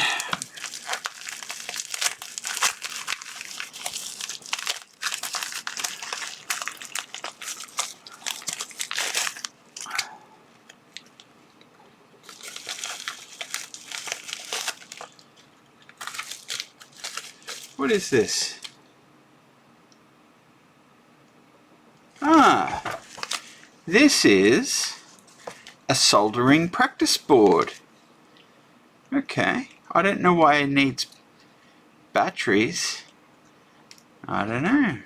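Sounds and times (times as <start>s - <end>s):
plastic packaging crinkling: 0.0s - 11.6s, 12.2s - 18.8s, 22.2s - 23.8s.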